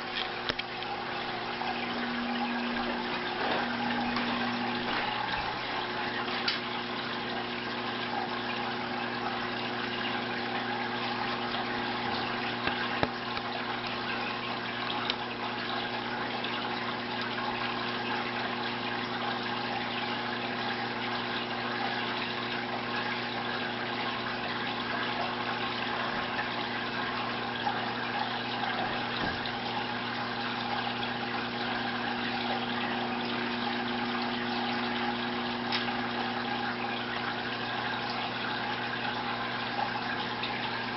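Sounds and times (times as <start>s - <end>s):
low motor hum: 0.0s - 8.2s.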